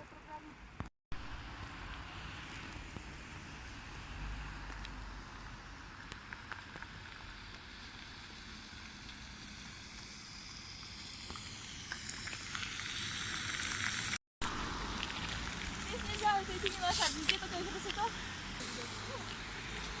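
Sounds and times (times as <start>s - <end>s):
outdoor rushing hiss: 6.9s - 20.0s.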